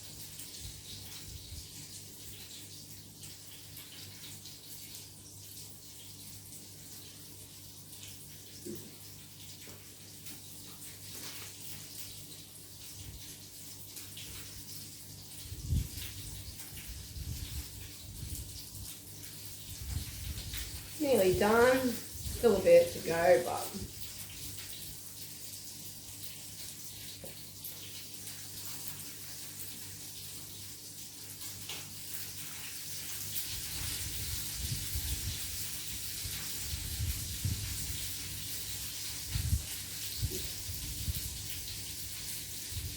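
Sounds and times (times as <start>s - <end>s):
food sizzling in hot oil: 7.8s - 42.9s.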